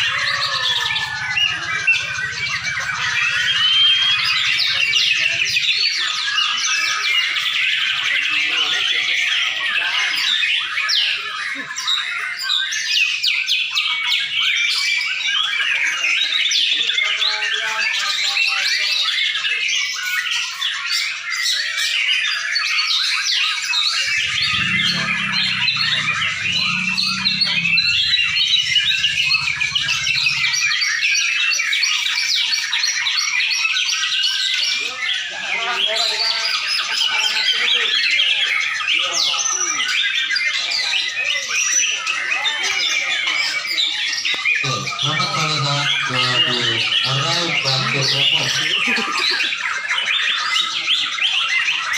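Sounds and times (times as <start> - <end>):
many birds singing: 0.0 - 51.9
low rumble: 24.0 - 30.8.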